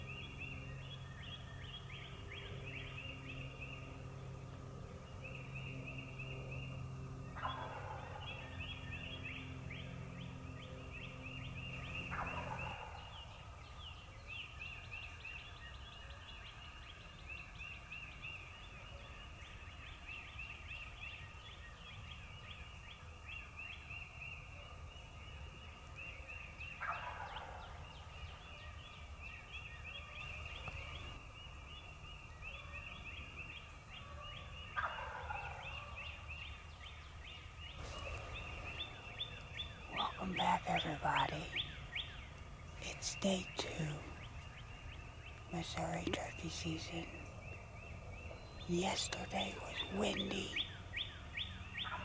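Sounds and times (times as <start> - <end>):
songbirds chirping: 0.0 - 52.0
turkey gobbling: 7.4 - 8.2, 12.2 - 13.1, 26.8 - 27.7, 34.8 - 36.0.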